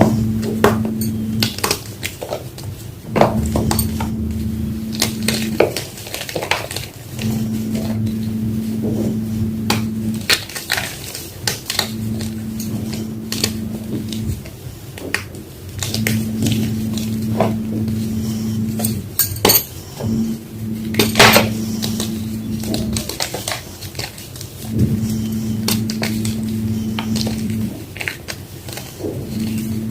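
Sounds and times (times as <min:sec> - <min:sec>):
low hum: 0:00.0 - 0:01.9, 0:03.0 - 0:06.1, 0:07.0 - 0:10.5, 0:11.7 - 0:14.5, 0:15.8 - 0:23.2, 0:24.6 - 0:28.0, 0:29.0 - 0:29.9.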